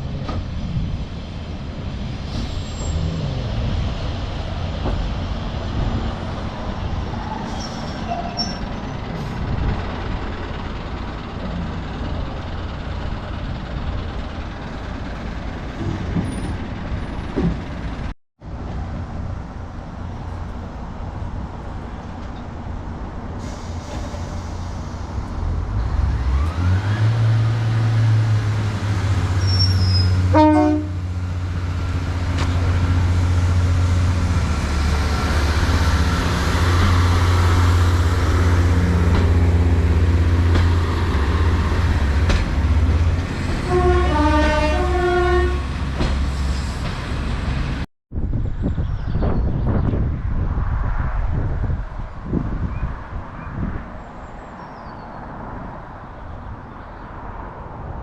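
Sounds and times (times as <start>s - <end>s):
locomotive engine running: 8.7s - 18.1s, 30.2s - 47.8s
two-note train horn: 30.3s - 31.0s, 43.6s - 45.7s.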